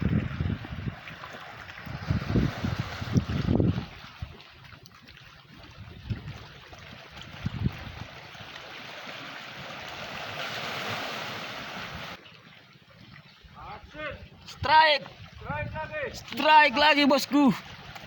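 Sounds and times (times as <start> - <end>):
waves washing on beach: 0.0 - 4.4, 6.7 - 12.2.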